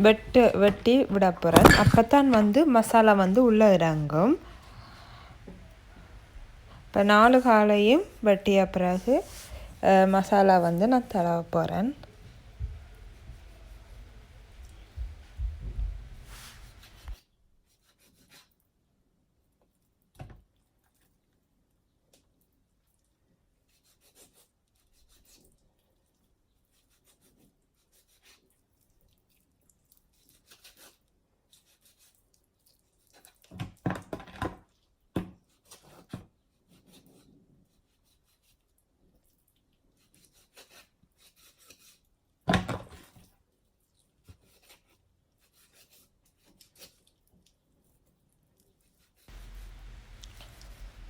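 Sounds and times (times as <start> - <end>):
rubbing and shuffling of chicken: 0.0 - 18.5, 48.8 - 51.0
knocks and clatter of utensils: 0.1 - 3.0.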